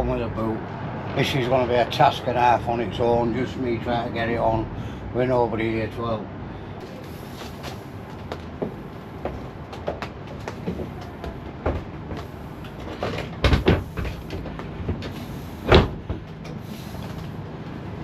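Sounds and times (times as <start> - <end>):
car door knocking and thumping: 8.6 - 12.3, 13.0 - 16.4.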